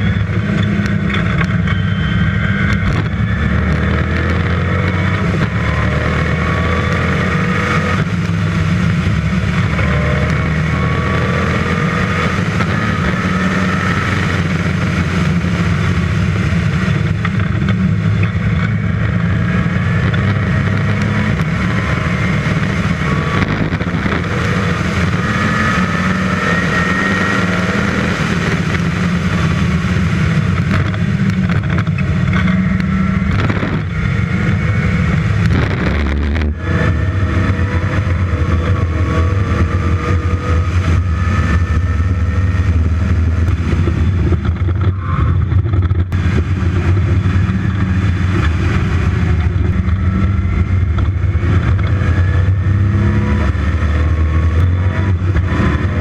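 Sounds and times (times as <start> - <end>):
sports car engine running hard: 0.0 - 56.0.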